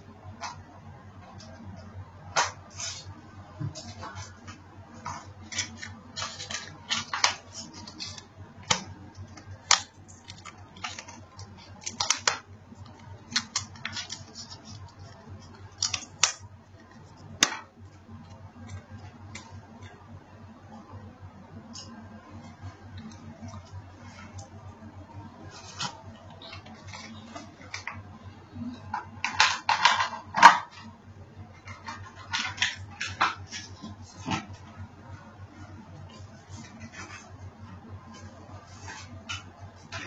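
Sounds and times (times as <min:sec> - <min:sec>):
low steady hum: 0:00.0 - 0:40.0
smartphone packaging handled: 0:05.1 - 0:17.7.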